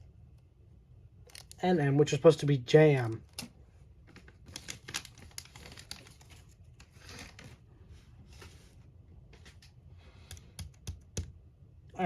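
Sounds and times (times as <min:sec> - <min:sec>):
plastic model pieces clicking: 0:01.2 - 0:01.6
plastic bags rustling: 0:03.3 - 0:08.8.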